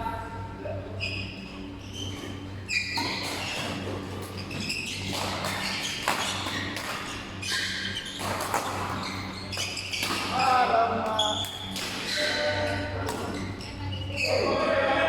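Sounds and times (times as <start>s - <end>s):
low hall hum: 0.0s - 15.0s
sneaker squeaks on floor: 1.0s - 14.5s.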